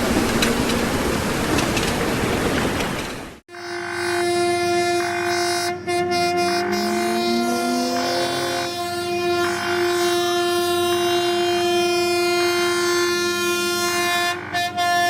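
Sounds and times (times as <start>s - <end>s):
train horn blast: 3.5s - 15.0s.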